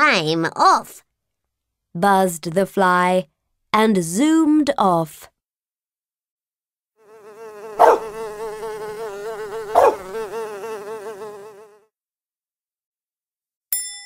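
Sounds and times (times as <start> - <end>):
cartoon fly buzzing: 7.0 - 11.9.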